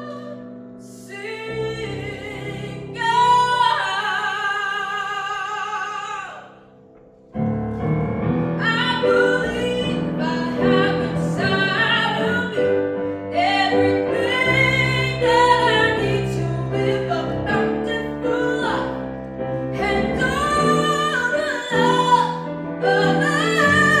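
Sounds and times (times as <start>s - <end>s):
woman singing: 0.0s - 6.6s, 8.6s - 24.0s
piano accompaniment: 0.0s - 24.0s.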